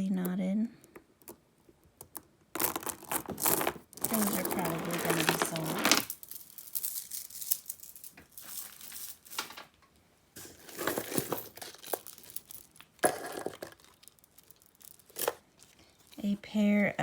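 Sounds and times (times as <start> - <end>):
packaging crinkling and rustling: 2.6 - 9.7, 10.4 - 16.2.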